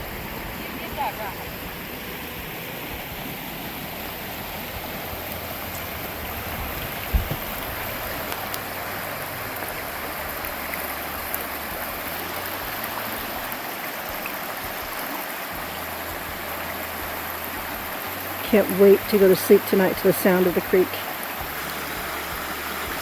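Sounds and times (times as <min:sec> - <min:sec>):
creek water rushing: 0:00.0 - 0:23.0
low thump: 0:06.5 - 0:07.8.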